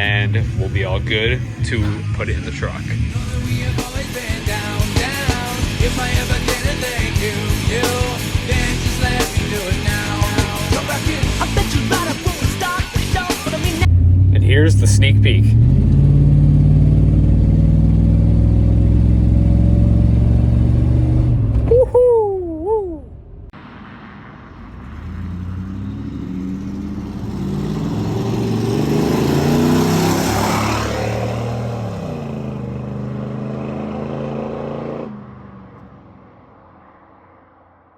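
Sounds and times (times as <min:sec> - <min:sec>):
engine accelerating: 0:00.0 - 0:21.8, 0:23.0 - 0:35.9
vehicle engine running: 0:00.0 - 0:21.8.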